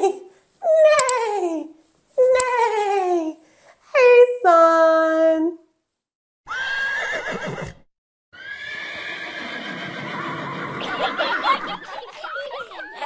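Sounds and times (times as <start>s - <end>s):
horse whinnying: 6.5s - 7.8s, 8.4s - 10.8s
person imitating horse neigh: 6.5s - 7.8s.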